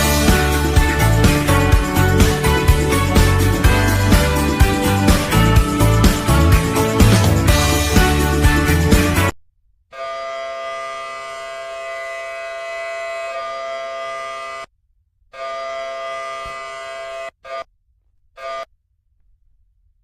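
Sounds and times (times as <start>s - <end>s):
horn-like chord blasts: 0.0s - 9.3s.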